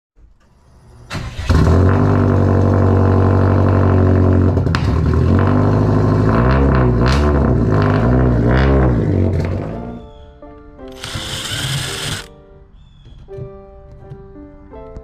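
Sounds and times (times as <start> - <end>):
car engine starting and idling: 0.2 - 9.9.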